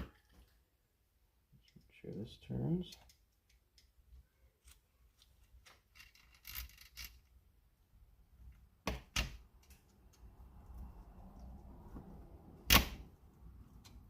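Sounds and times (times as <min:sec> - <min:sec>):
small metal parts clicking: 0:05.6 - 0:07.4.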